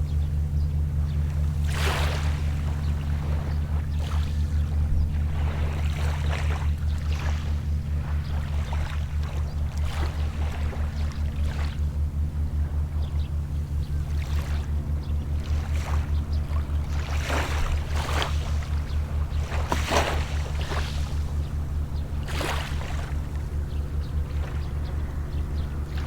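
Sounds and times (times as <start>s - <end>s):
boat engine throbbing: 0.0s - 26.0s
small waves washing: 1.5s - 11.9s, 15.3s - 26.0s.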